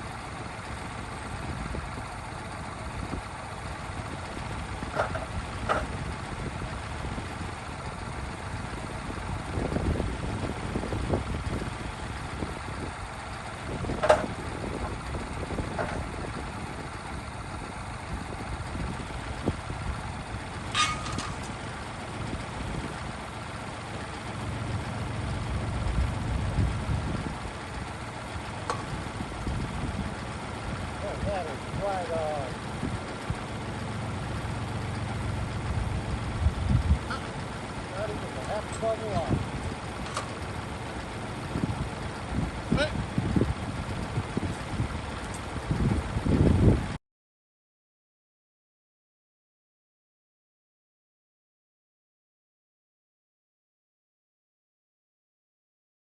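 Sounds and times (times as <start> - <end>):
tractor engine running: 0.0 - 47.0
sharp knocks and clanks: 4.9 - 6.0, 14.0 - 14.4, 20.7 - 21.6.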